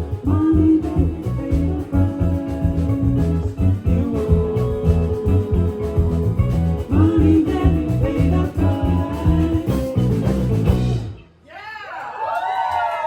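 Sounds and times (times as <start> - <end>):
live rock band playing: 0.0 - 11.4
crowd cheering: 11.4 - 13.0.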